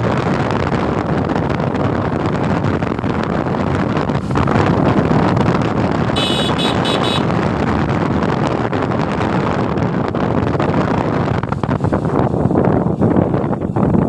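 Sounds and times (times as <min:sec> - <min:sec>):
motorcycle and road noise: 0:00.0 - 0:14.0
wind buffeting microphone: 0:00.0 - 0:14.0
high horn beeps: 0:06.2 - 0:07.3.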